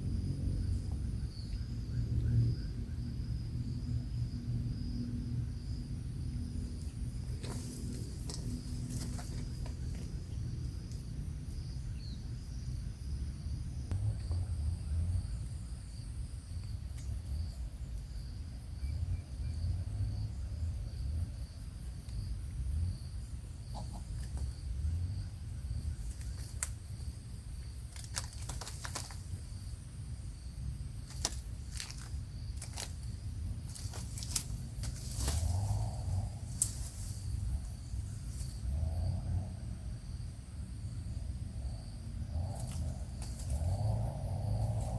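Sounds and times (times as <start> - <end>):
low rumble: 0.0 - 16.4, 32.2 - 44.9.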